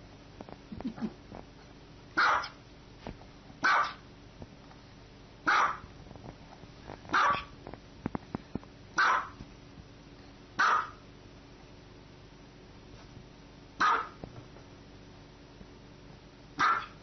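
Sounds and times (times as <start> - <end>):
small dog barking: 2.2 - 2.6, 3.6 - 4.0, 5.4 - 5.9, 7.1 - 7.5, 9.0 - 9.4, 10.6 - 11.0, 13.8 - 14.2, 16.6 - 17.0.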